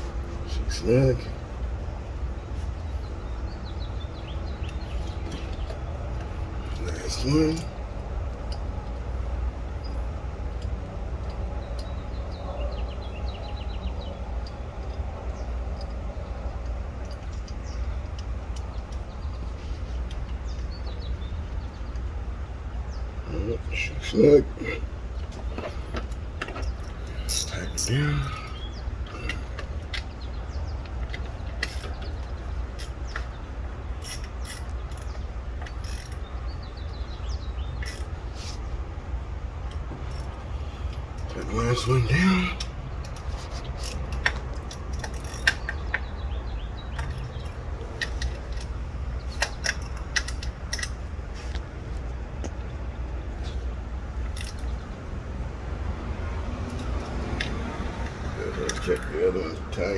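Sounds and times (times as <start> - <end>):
bird singing: 0.0 - 55.2, 56.5 - 59.9
low outdoor rumble: 0.0 - 59.9
steady low hum: 0.0 - 59.9
ratchet wrench clicking: 30.8 - 33.3, 34.0 - 36.3, 37.7 - 38.2, 42.6 - 46.0, 46.9 - 51.1.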